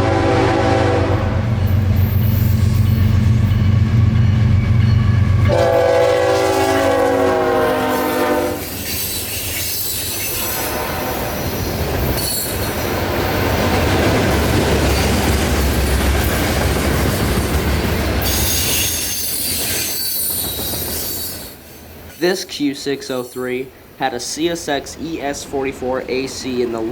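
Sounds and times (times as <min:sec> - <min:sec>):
locomotive horn chord: 0:00.0 - 0:01.5, 0:05.4 - 0:08.6
train wheels clickety-clack: 0:01.6 - 0:05.6, 0:07.4 - 0:22.4.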